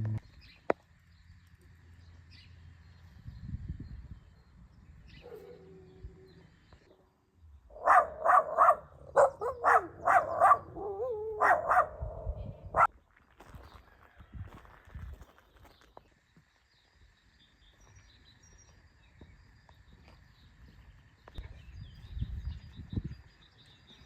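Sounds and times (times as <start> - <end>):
dog barking: 5.2 - 5.8, 7.7 - 12.9.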